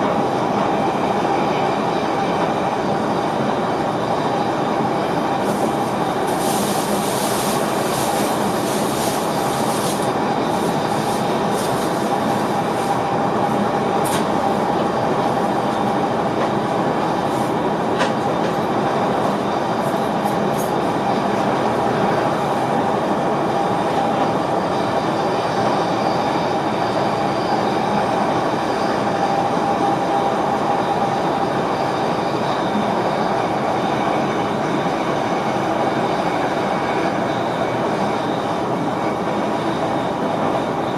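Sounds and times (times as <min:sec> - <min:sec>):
wheel and track noise: 0:04.8 - 0:20.9.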